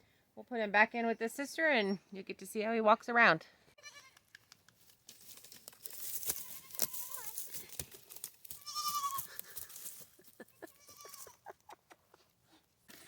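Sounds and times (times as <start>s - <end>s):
young goat bleating: 3.8s - 4.2s, 6.4s - 7.4s, 8.6s - 9.4s, 10.6s - 11.4s
rustling: 4.2s - 11.6s.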